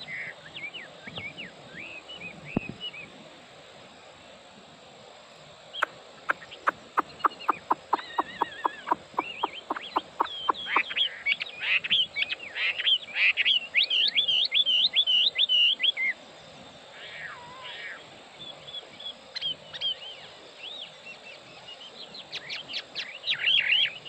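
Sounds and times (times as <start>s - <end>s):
bird singing whistled phrases: 6.3s - 11.1s.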